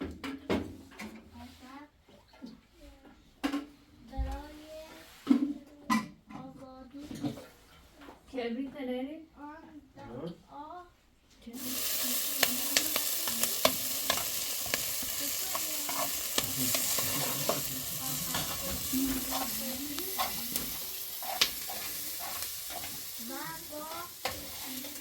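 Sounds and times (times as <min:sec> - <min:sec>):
food frying in hot oil: 0:11.6 - 0:25.0.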